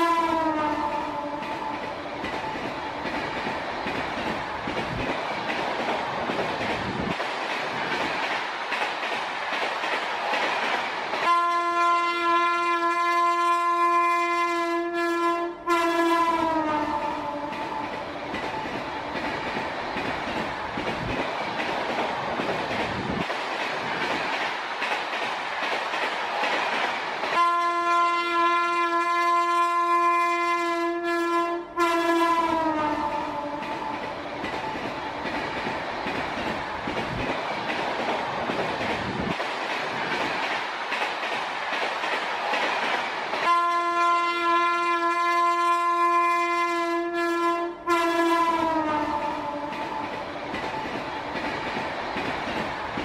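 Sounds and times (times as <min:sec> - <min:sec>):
train horn blasts: 0:00.0 - 0:01.7, 0:11.2 - 0:17.9, 0:27.4 - 0:33.9, 0:43.4 - 0:50.0
train wheels rumbling and clattering: 0:00.0 - 0:14.6, 0:15.6 - 0:30.6, 0:31.7 - 0:46.8, 0:47.8 - 0:53.0.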